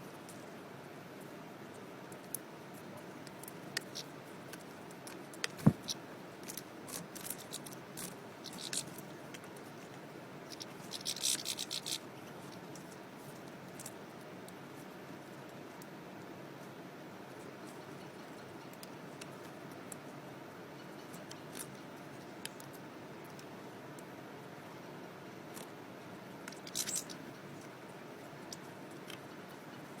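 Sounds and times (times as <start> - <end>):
birds pecking seeds clicks: 3.2 - 9.6, 10.4 - 14.6, 26.5 - 27.2.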